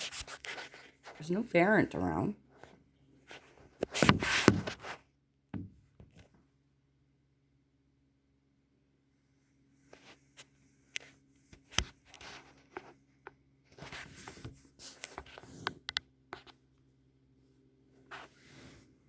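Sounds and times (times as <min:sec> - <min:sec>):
rustling or scraping: 0:00.0 - 0:01.5, 0:02.4 - 0:05.1, 0:09.8 - 0:16.7, 0:18.0 - 0:19.0
faint steady hum: 0:00.0 - 0:19.0.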